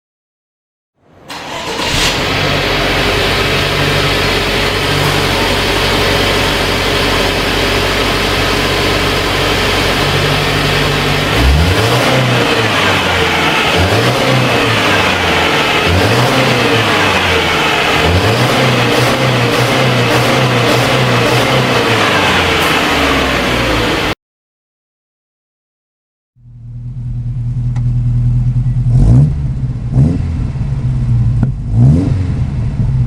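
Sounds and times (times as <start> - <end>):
car engine idling and revving: 1.0 - 24.2, 26.4 - 33.0.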